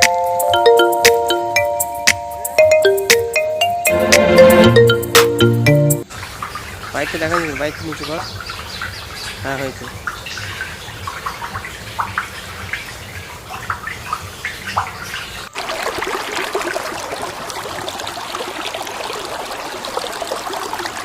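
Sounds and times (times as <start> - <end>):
water running and splashing: 6.0 - 21.0.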